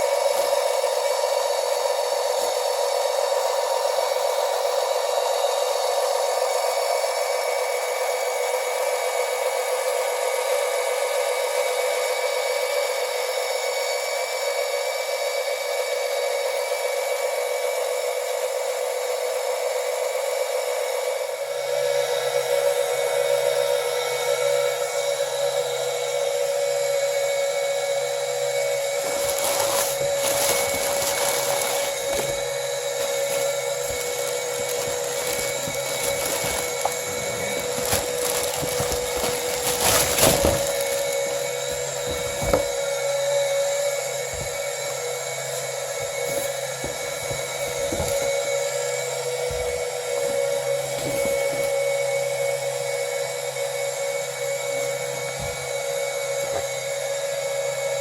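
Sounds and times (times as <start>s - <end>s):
pump motor whining: 22.3s - 53.4s.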